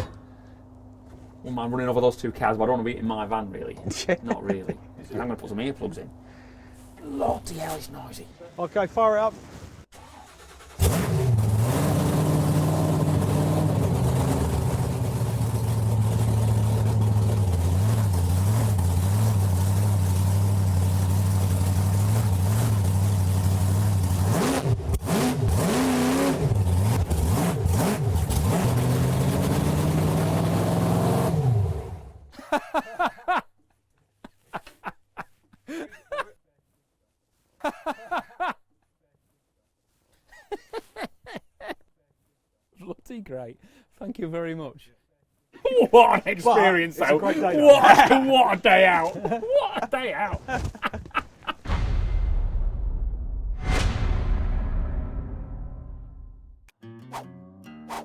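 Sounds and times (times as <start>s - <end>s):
monster truck engine running: 10.4s - 32.3s.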